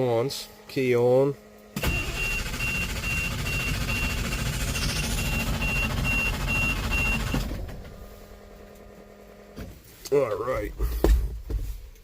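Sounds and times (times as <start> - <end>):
diesel engine cranking on starter: 1.7 - 9.6
high electronic beeper: 1.8 - 7.4.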